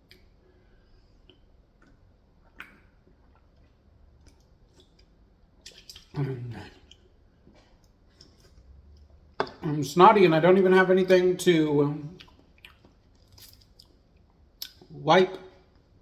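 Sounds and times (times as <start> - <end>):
chewing and mouth sounds: 1.1 - 9.3, 12.0 - 15.0.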